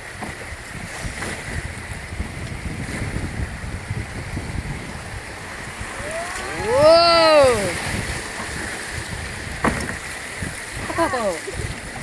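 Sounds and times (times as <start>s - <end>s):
water rushing in rapids: 0.0s - 12.0s
wind buffeting microphone: 0.0s - 12.0s
person calling out: 6.0s - 7.8s, 11.0s - 11.7s.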